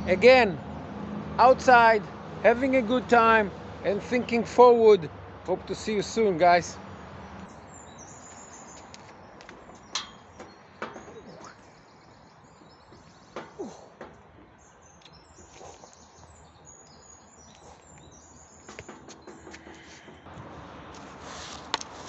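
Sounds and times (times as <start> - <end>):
birds chirping: 5.5 - 20.3.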